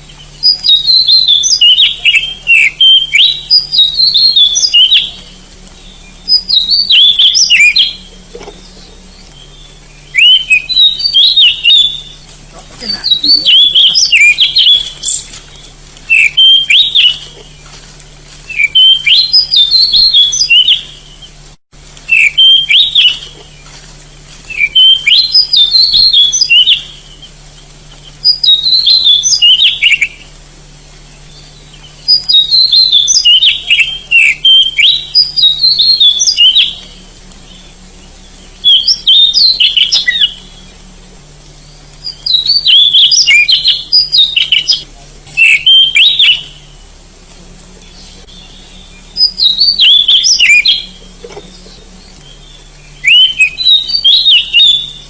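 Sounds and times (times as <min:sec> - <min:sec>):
bird singing whistled phrases: 0:00.1 - 0:12.2, 0:12.8 - 0:17.6, 0:18.5 - 0:21.4, 0:22.1 - 0:23.6, 0:24.5 - 0:27.4, 0:28.0 - 0:30.3, 0:31.2 - 0:40.8, 0:41.6 - 0:46.9, 0:47.8 - 0:55.0.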